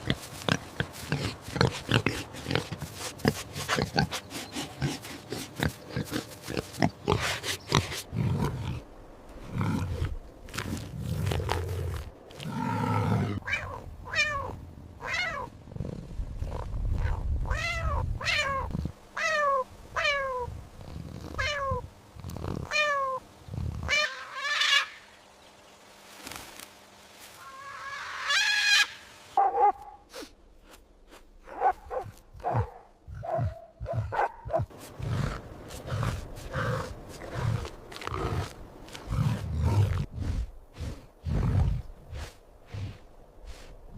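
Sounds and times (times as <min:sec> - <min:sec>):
loud high animal call: 0:27.4 - 0:29.1.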